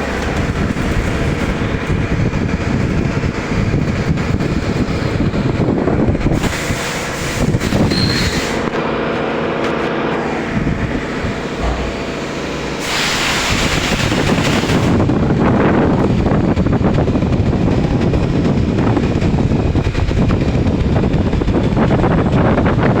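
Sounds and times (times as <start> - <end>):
cnc machine running: 0.0 - 22.0
steady tones: 10.1 - 17.6.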